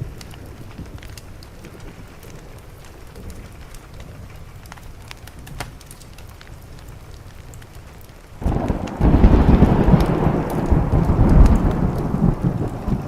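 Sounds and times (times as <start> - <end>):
steady rain: 0.0 - 13.0
thunder rumbling: 8.4 - 13.0.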